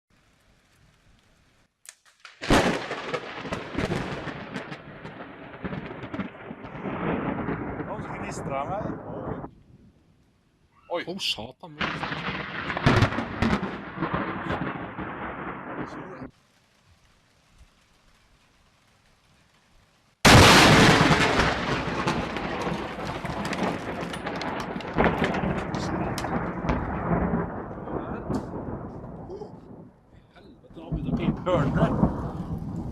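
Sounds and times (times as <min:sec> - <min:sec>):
loud thunderclap: 0:02.4 - 0:09.5, 0:11.8 - 0:16.3, 0:20.2 - 0:32.9
crackling rumbling thunder: 0:02.4 - 0:10.1, 0:11.8 - 0:18.9, 0:20.2 - 0:32.9.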